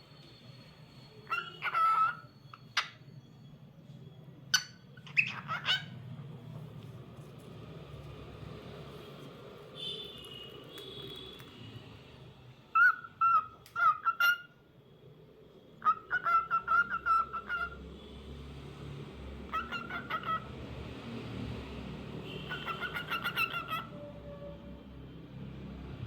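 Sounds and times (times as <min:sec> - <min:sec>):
cockatiel chirping: 0:01.2 - 0:03.1, 0:04.5 - 0:05.9, 0:12.7 - 0:14.5, 0:15.8 - 0:17.8, 0:19.5 - 0:20.5, 0:22.5 - 0:23.9.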